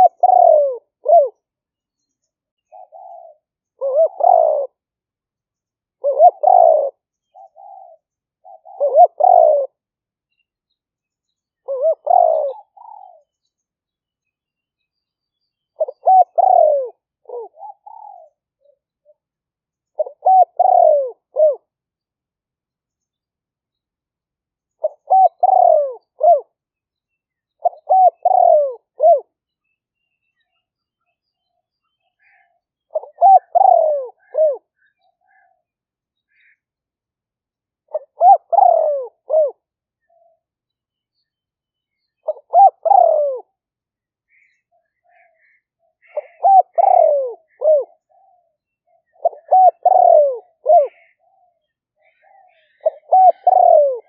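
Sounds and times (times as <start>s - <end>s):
dove cooing: 0.0s - 1.4s, 2.7s - 4.8s, 6.0s - 9.8s, 11.6s - 13.3s, 15.8s - 19.2s, 20.0s - 21.7s, 24.8s - 26.6s, 27.6s - 29.4s, 32.2s - 35.6s, 37.9s - 40.4s, 42.2s - 43.6s, 44.3s - 54.0s
small birds chirping: 0.0s - 36.9s, 37.8s - 54.0s.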